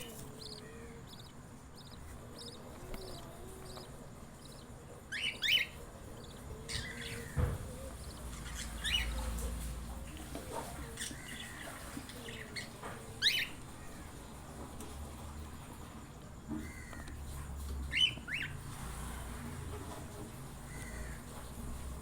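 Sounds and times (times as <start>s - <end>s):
budgerigars squawking chirps: 0.0s - 10.2s
low thump: 7.3s - 8.0s.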